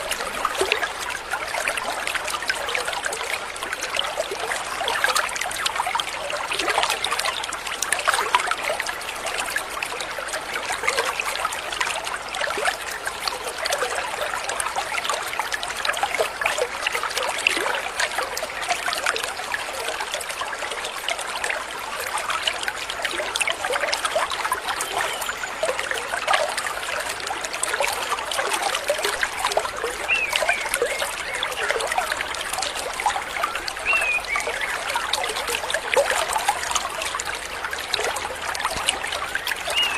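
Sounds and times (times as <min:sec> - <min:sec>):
stream babbling over stones: 0:00.0 - 0:39.9
bird chirps: 0:30.0 - 0:31.1, 0:33.8 - 0:34.8, 0:39.7 - 0:39.9.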